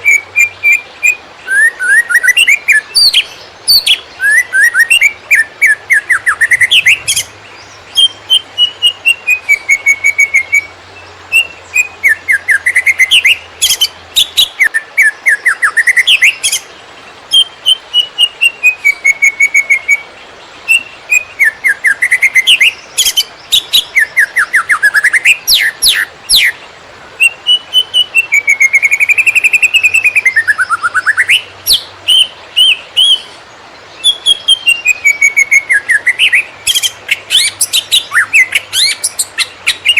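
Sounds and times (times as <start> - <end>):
bird singing whistled phrases: 0.0 - 10.7, 11.3 - 16.6, 17.3 - 20.1, 20.7 - 26.6, 27.2 - 33.4, 34.0 - 39.9
bird chattering notes: 6.2 - 7.4.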